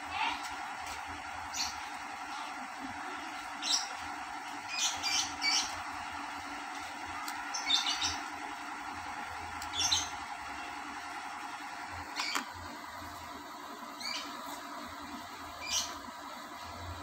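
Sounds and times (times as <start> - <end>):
steady background hum: 0.0 - 17.0
small birds chirping: 1.5 - 2.4, 3.4 - 6.1, 7.2 - 8.4, 9.6 - 10.7, 13.9 - 16.1.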